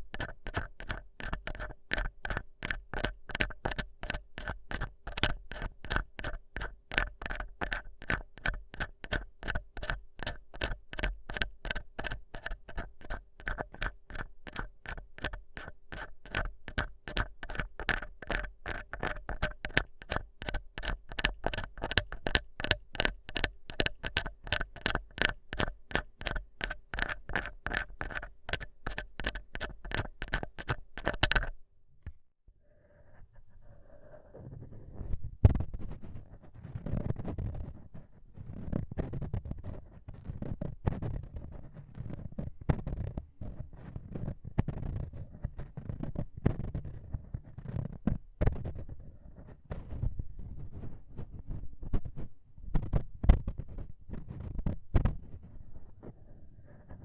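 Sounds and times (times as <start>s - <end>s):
ear pick scraping: 0.0s - 31.6s.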